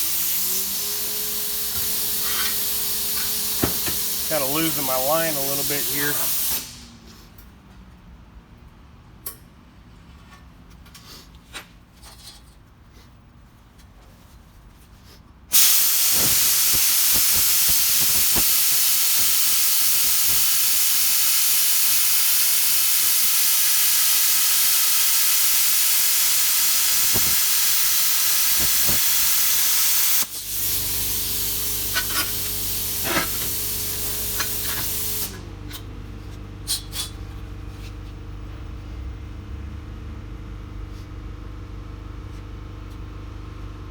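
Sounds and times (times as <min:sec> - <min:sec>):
plasma cutter hissing: 0:00.0 - 0:06.8, 0:15.5 - 0:35.4.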